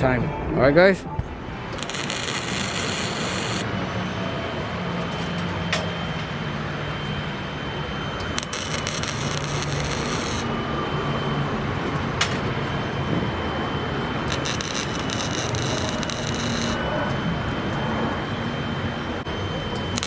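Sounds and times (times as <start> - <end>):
low workshop hum: 1.2 - 19.2
welding crackle: 1.3 - 3.8, 8.2 - 10.6, 14.3 - 16.8
sharp metal clicks: 1.7 - 3.7, 8.2 - 10.5, 14.3 - 16.8.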